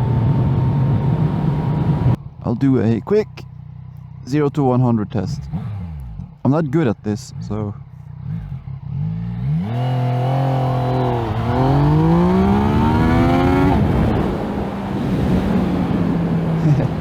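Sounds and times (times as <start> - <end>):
loud wind noise: 0.0 - 2.2, 10.6 - 17.0
motorcycle engine accelerating: 0.0 - 17.0.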